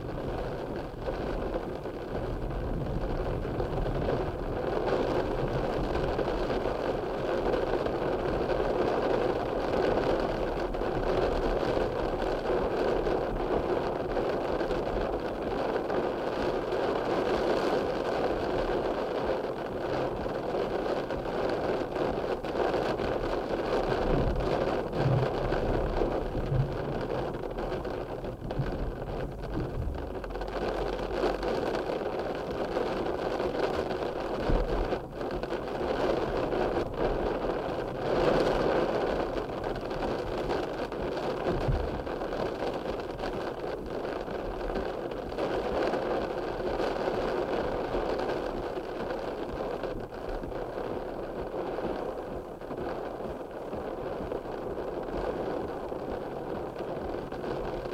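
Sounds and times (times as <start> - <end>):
steady rain hiss: 0.0 - 57.9
faint low thuds: 24.0 - 31.4.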